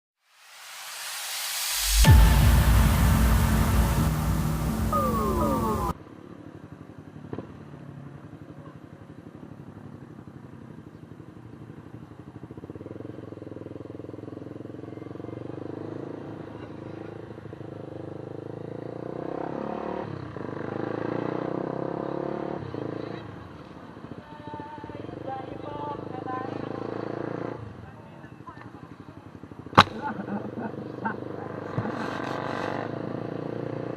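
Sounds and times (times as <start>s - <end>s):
vehicle engine running: 2.0s - 15.4s.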